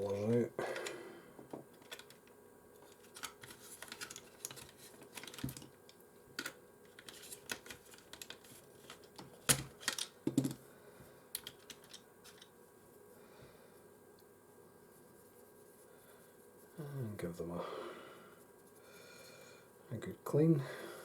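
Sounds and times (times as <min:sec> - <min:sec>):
plastic parts clicking and tapping: 0:00.1 - 0:05.7, 0:06.4 - 0:10.6, 0:11.4 - 0:12.5.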